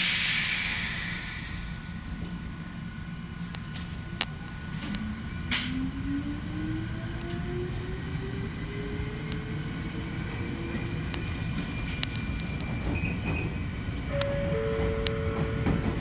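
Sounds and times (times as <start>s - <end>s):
wheels rumbling on rail: 0.0s - 16.0s
train motor whine: 12.1s - 16.0s.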